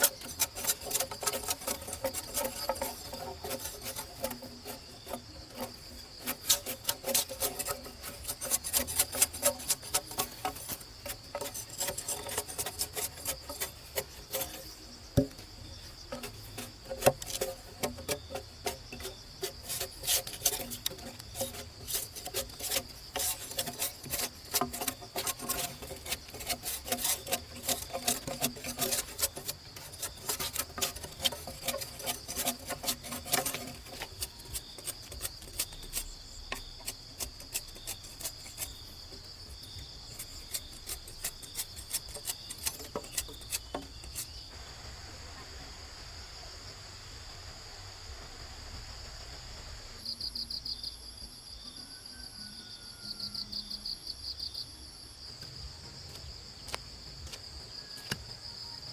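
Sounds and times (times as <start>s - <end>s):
sharp clicks and scrapes: 0.0s - 44.6s, 55.4s - 58.9s
insects droning: 0.0s - 58.9s.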